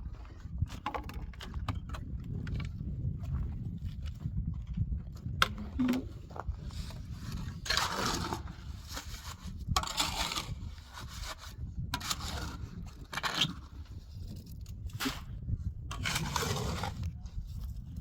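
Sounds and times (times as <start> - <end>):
scraping strokes: 15.9 - 17.1.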